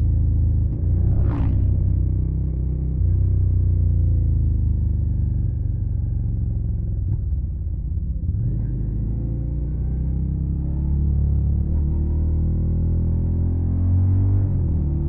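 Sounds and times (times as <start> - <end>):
motorcycle engine rumble: 0.0 - 8.3.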